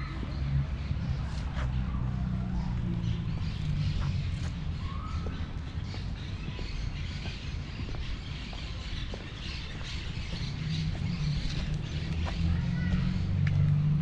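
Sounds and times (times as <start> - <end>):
birds chirping and twittering: 0.0 - 14.0
steady low rumble: 0.0 - 14.0.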